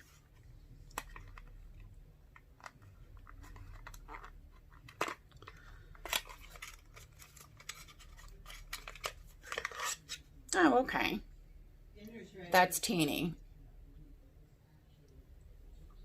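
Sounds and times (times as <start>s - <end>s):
packaging clicks and taps: 0.8s - 9.9s.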